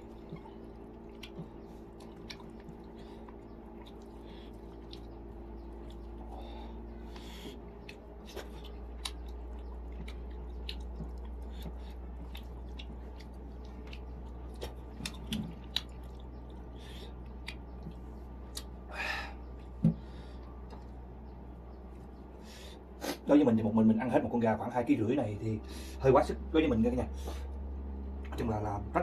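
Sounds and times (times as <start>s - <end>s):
person chewing food: 0.0s - 21.2s
steady low hum: 0.0s - 29.0s.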